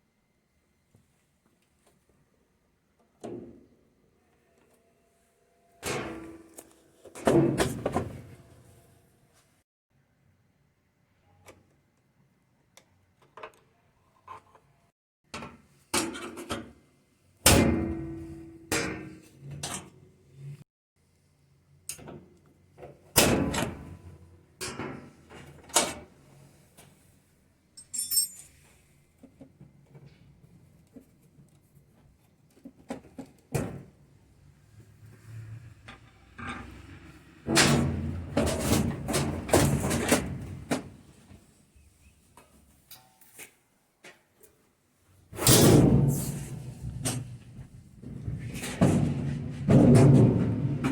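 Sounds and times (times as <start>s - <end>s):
metal parts knocking and clattering: 27.8s - 28.6s
small metal clinks: 27.8s - 28.7s.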